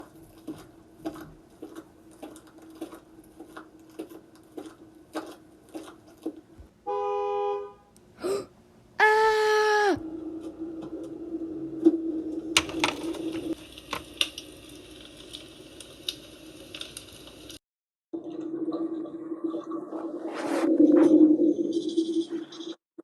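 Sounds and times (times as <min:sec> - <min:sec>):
car horn honking: 0:06.9 - 0:07.9.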